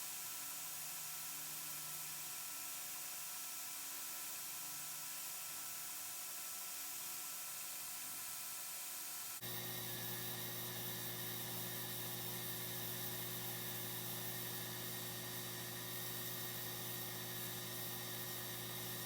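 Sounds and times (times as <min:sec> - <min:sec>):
steady electrical hum: 0:00.0 - 0:19.0.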